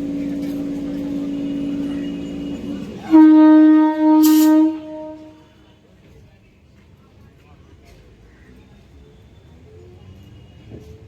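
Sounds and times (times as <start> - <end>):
train horn: 1.0 - 5.8.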